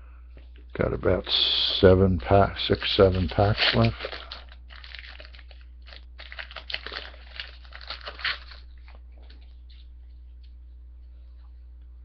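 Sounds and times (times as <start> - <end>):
foil wrapper crinkling and tearing: 1.6 - 9.4.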